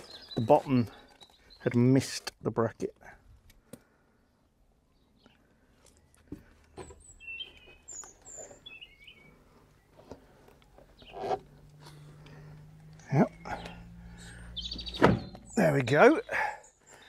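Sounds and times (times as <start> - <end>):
small bird chirping: 7.0 - 10.0, 10.8 - 17.0.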